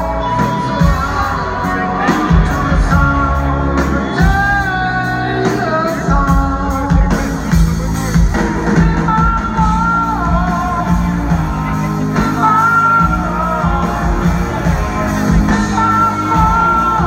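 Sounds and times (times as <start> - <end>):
man singing: 0.0 - 17.0
rock band playing live: 0.0 - 17.0.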